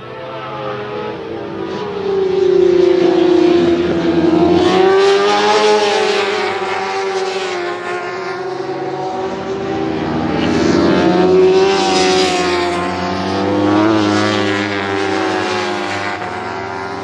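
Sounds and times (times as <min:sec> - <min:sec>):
racing motorcycles high revs: 0:00.2 - 0:17.0.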